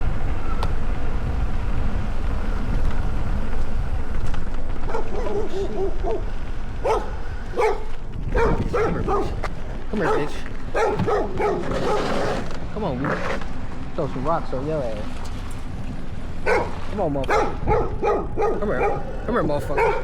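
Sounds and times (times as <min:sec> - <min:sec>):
steady low rumble: 0:00.0 - 0:20.0
dog barking and yelping: 0:04.8 - 0:12.4, 0:16.4 - 0:20.0.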